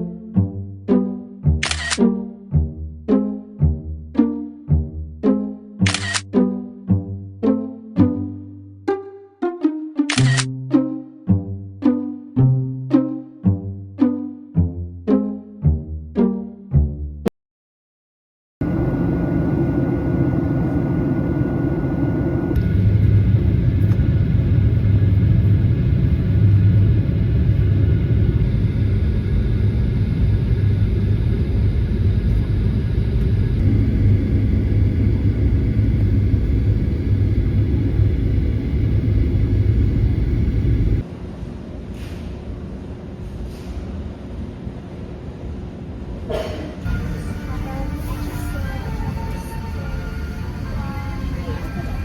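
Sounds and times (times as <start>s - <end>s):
airliner cabin rumble: 18.6s - 52.0s.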